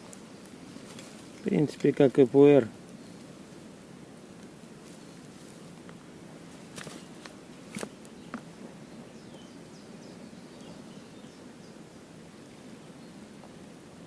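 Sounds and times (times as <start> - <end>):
steady background hiss: 0.0 - 14.0
faint bird chirps: 7.8 - 13.4.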